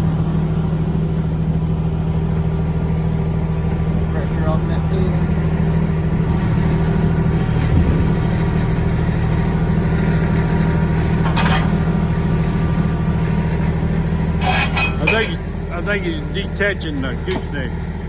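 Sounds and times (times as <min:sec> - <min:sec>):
diesel truck engine idling: 0:00.0 - 0:18.0.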